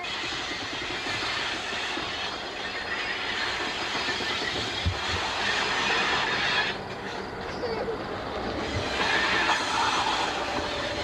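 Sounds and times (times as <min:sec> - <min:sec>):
train wheels clacking over rails: 0:00.0 - 0:11.0.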